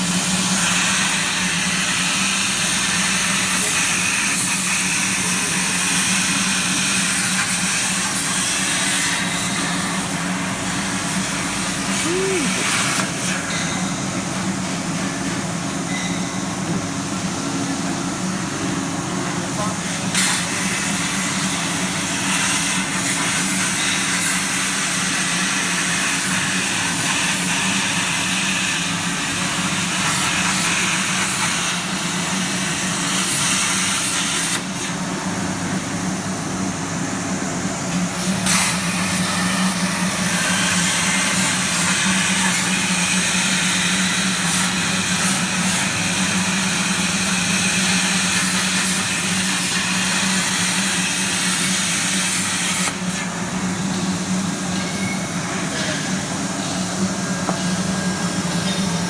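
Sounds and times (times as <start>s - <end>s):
plasma cutter hissing: 0.2s - 13.4s, 38.2s - 53.4s.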